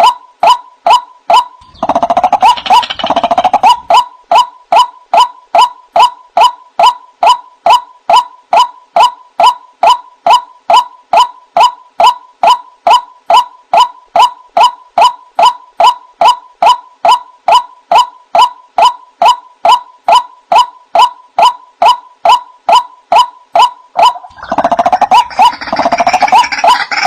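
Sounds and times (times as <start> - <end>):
chorus of harsh bird calls: 1.6 - 4.0, 24.0 - 27.0.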